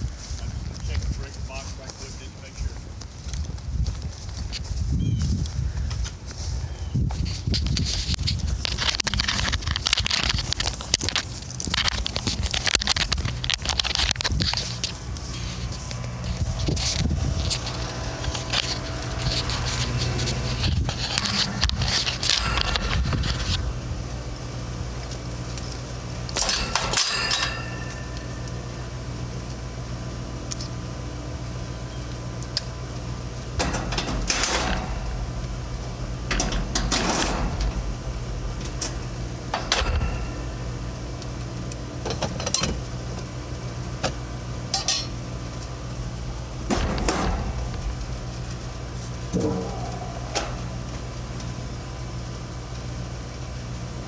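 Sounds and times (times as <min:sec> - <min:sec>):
low machine hum: 0:00.0 - 0:54.0
metal tools clattering: 0:26.4 - 0:28.5, 0:44.7 - 0:45.2.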